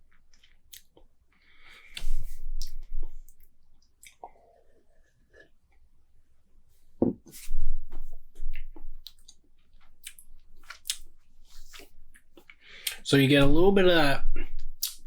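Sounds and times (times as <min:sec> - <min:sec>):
lip smacks: 0:04.0 - 0:04.4, 0:10.0 - 0:13.0, 0:14.8 - 0:15.0
tongue clicks: 0:10.0 - 0:11.0, 0:14.8 - 0:15.0.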